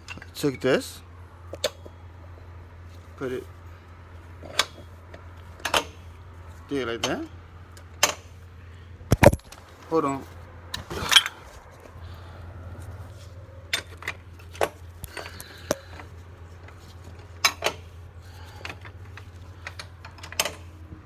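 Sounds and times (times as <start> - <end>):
metal tools clinking: 10.0 - 11.6.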